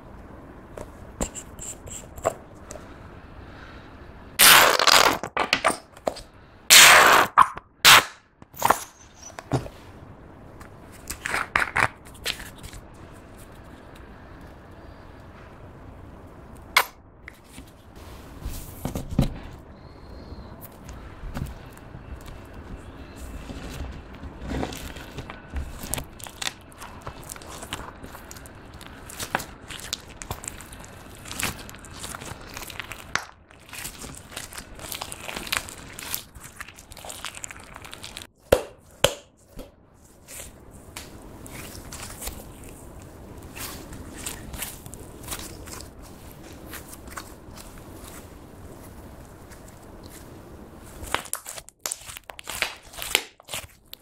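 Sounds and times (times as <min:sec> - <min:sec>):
hands kneading slime: 0:16.5 - 0:54.0.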